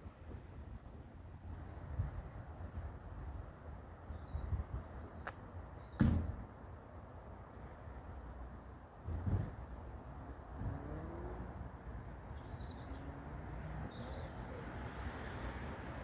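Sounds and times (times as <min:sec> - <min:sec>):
wind rumble on microphone: 0:00.0 - 0:05.0, 0:09.0 - 0:11.8.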